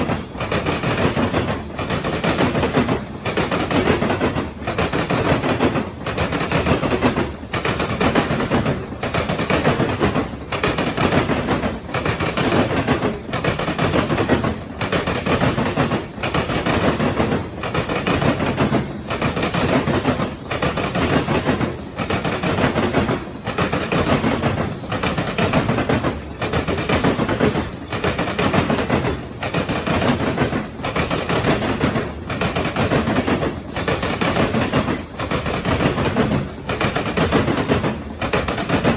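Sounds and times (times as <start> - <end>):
train wheels clattering over crossing: 0.0 - 38.9.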